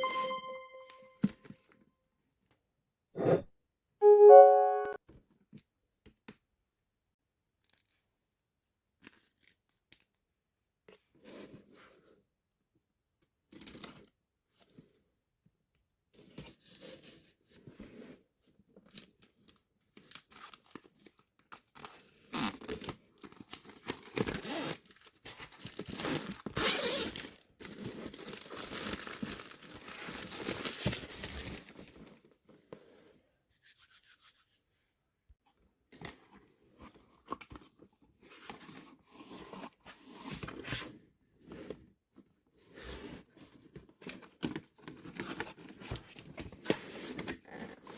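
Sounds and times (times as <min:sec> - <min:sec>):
plastic packaging rustling: 0:27.7 - 0:31.6.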